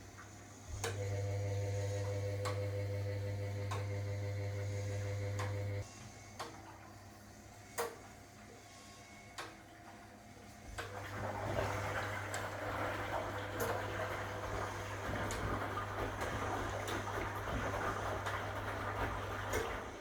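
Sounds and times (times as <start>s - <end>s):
low mains hum: 0.0s - 20.0s
washing machine humming: 0.0s - 20.0s
water rushing through machine: 10.8s - 20.0s.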